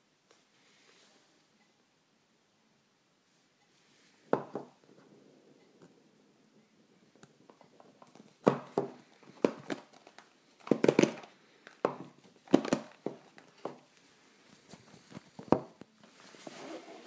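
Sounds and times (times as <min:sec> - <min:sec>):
packaging crinkling: 0:07.7 - 0:13.9.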